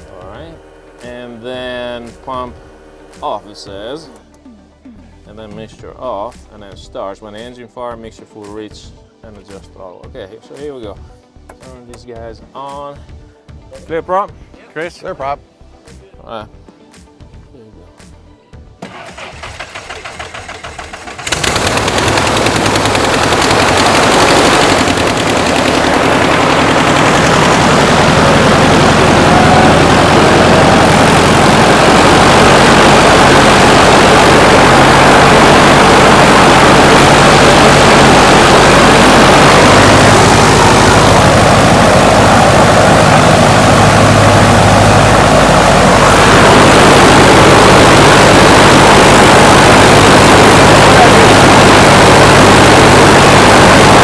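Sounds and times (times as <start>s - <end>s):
propeller aircraft engine running: 0.0s - 4.7s, 18.8s - 54.0s
aircraft engine starter cranking: 18.8s - 33.3s.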